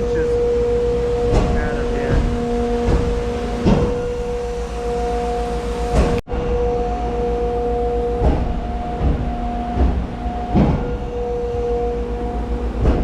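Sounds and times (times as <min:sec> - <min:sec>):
heavy clunks: 0:00.0 - 0:06.2, 0:08.2 - 0:11.7, 0:12.5 - 0:13.0
low engine rumble: 0:00.0 - 0:06.2
truck unloader whining: 0:00.0 - 0:13.0.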